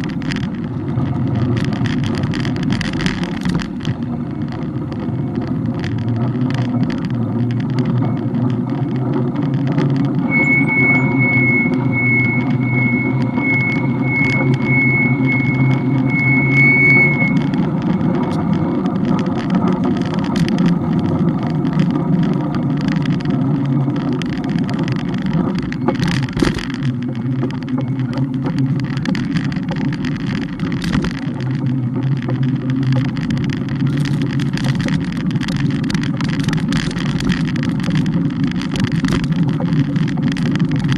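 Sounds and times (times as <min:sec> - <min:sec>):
bike rumbling on road: 0:00.0 - 0:40.9
high electronic beep: 0:10.2 - 0:18.4.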